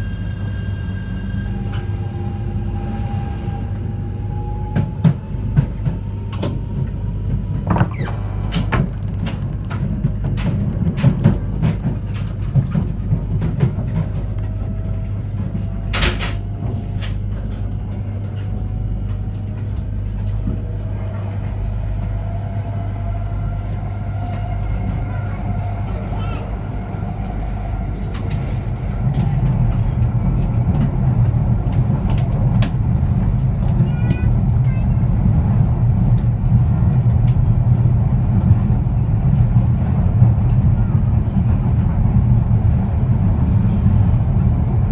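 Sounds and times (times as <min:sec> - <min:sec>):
rising inverter whine: 0:00.0 - 0:09.6
train wheels rumbling on rail: 0:00.0 - 0:44.9.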